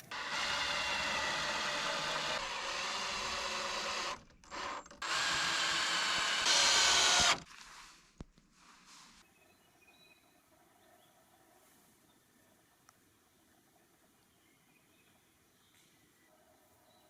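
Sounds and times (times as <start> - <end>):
handheld power tool running: 0.0 - 7.4.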